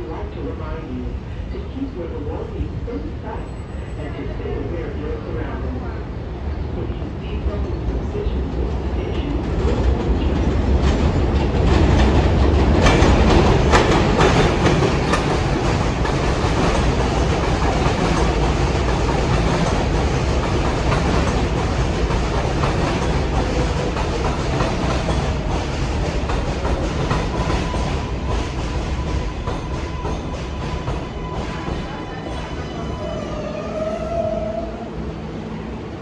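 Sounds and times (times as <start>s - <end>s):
subway train rumbling: 0.0s - 36.0s
wheels clicking over rail joints: 10.9s - 33.0s.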